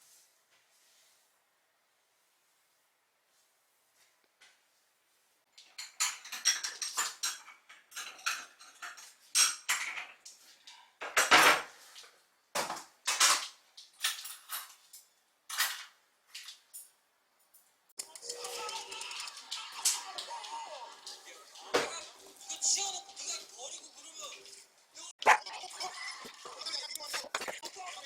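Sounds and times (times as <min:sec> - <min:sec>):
dishes and cutlery clattering: 0:05.5 - 0:16.9, 0:17.5 - 0:22.6, 0:25.3 - 0:28.0.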